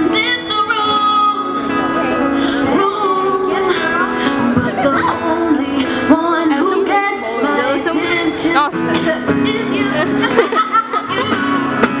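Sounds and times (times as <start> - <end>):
female vocal group singing: 2.5 - 10.0.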